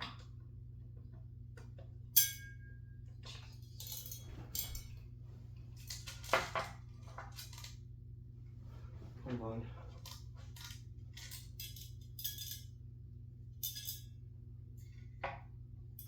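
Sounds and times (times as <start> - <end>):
low steady hum: 0.0 - 16.0
screwdriver clinking on metal: 3.4 - 5.0, 10.0 - 12.7, 13.6 - 14.1.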